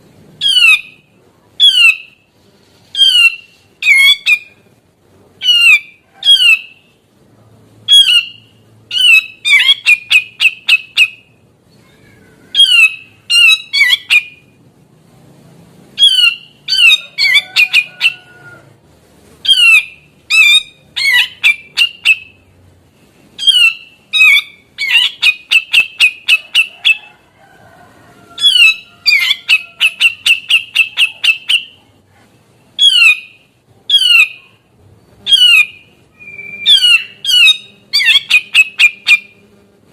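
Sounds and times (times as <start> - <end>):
bulbul calling: 19.4 - 22.4, 23.4 - 27.0, 28.4 - 31.9, 35.3 - 39.4.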